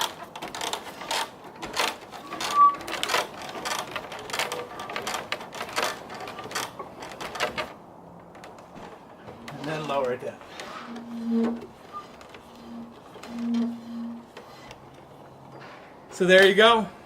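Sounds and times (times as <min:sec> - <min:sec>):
rope rasping through a pulley: 0:00.0 - 0:07.8, 0:08.4 - 0:15.3
brief squeak: 0:02.2 - 0:02.8.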